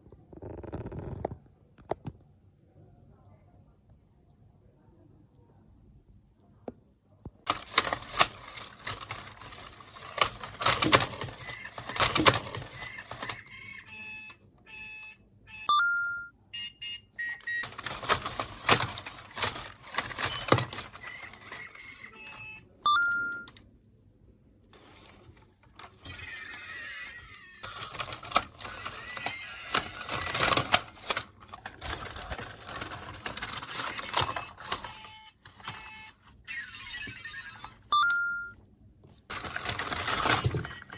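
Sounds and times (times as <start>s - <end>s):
plastic toy parts clicking: 7.5s - 14.0s, 17.2s - 22.4s, 24.8s - 37.9s, 39.3s - 40.9s
electronic toy beeping: 7.5s - 23.6s, 25.8s - 38.6s, 39.6s - 40.9s.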